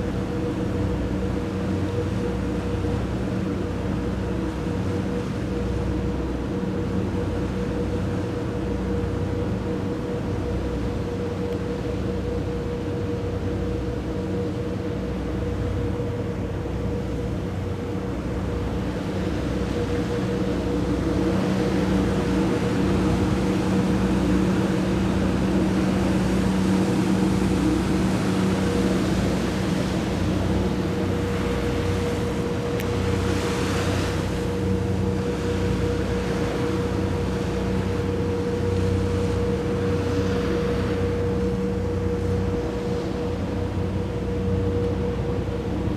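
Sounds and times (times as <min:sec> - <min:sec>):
ship engines droning: 0:00.0 - 0:45.9
hull rushing through water: 0:16.4 - 0:45.9.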